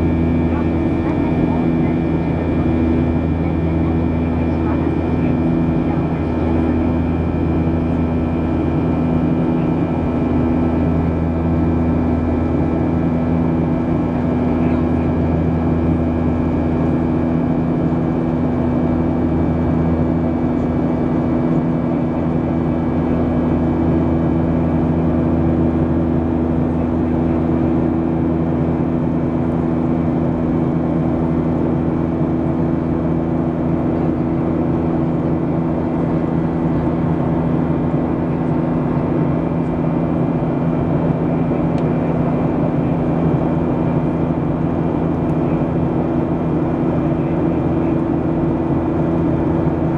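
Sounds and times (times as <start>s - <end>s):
airplane cabin engine drone: 0.0s - 49.9s.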